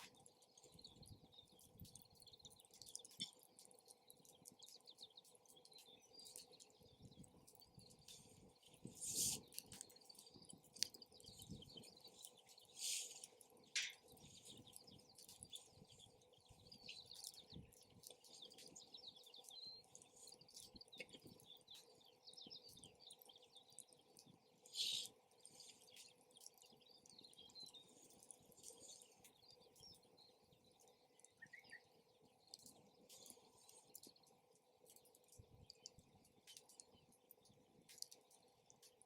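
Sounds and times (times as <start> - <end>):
campfire crackling: 0.0 - 39.0
low wind rumble: 4.2 - 12.7.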